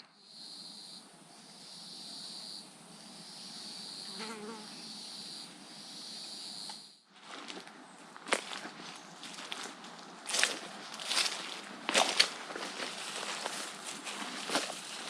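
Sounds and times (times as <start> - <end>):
insects buzzing: 0.0 - 7.1.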